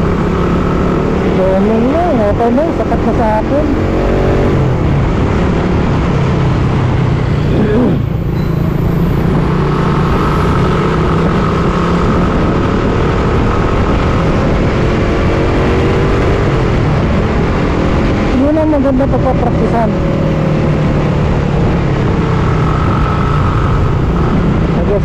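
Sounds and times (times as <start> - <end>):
motorcycle engine running: 0.0 - 25.0
road noise: 0.0 - 25.0
wind noise: 0.0 - 25.0.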